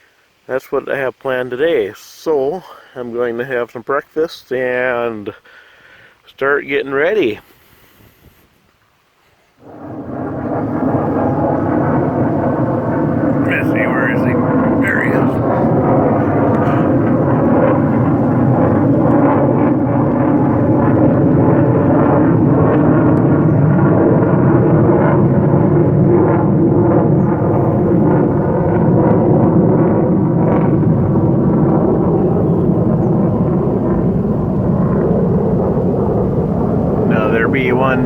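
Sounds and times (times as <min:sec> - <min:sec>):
jet bomber flying over: 0:09.6 - 0:38.0.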